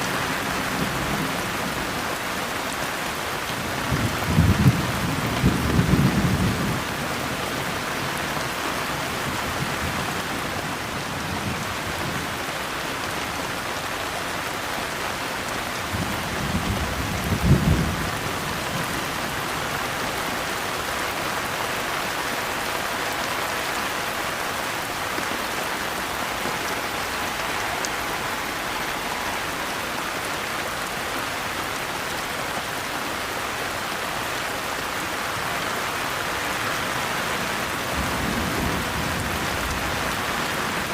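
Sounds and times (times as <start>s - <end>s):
steady rain: 0.0s - 40.9s
low rumble of thunder: 3.8s - 7.8s, 15.8s - 19.5s, 37.6s - 40.9s.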